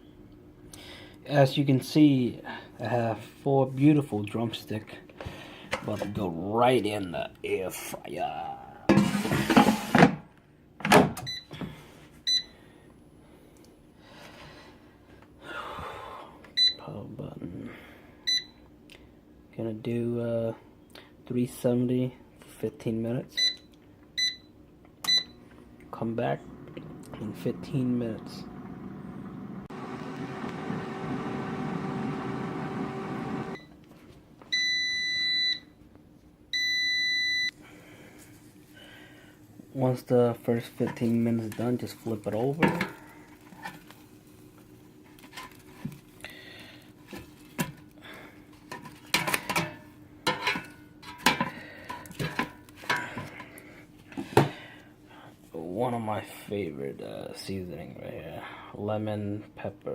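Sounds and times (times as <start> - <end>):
air fryer fan humming: 23.4 - 33.8, 36.5 - 55.2.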